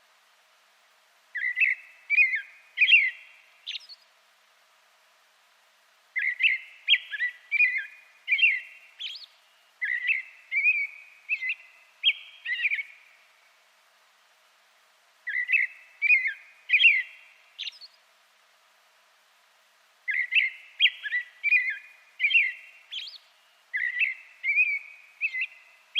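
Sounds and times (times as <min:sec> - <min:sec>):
songbird whistling: 0:01.4 - 0:04.0, 0:06.2 - 0:13.1, 0:15.3 - 0:18.0, 0:20.1 - 0:25.8.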